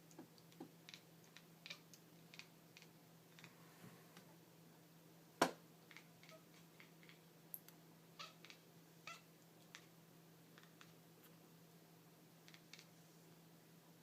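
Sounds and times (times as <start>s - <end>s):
cat chirping and chattering: 0.1s - 3.6s, 5.8s - 7.2s, 8.2s - 11.0s, 12.4s - 13.0s.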